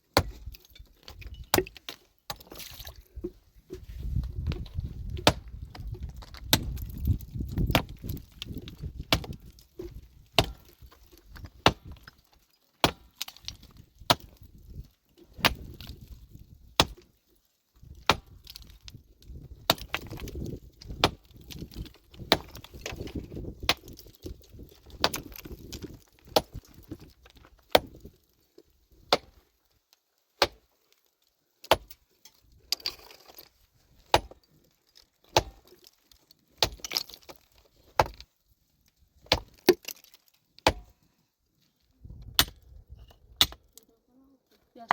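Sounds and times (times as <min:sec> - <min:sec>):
metal tool striking rock: 0:00.1 - 0:03.0, 0:04.5 - 0:12.2, 0:31.6 - 0:33.5, 0:34.1 - 0:34.5, 0:35.3 - 0:35.7, 0:39.2 - 0:40.9, 0:42.3 - 0:42.6, 0:43.4 - 0:43.8
rubble shifting rumble: 0:03.1 - 0:10.2.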